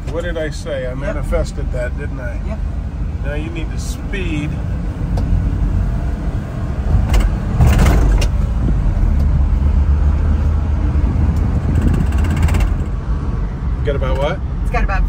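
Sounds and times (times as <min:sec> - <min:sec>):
road noise inside cab: 0:00.0 - 0:15.0
small truck engine running: 0:05.1 - 0:14.4.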